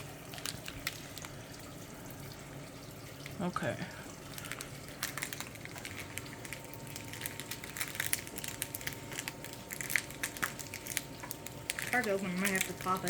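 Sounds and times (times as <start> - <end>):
plastic snack bag crinkling: 0.0 - 1.8, 4.2 - 13.0.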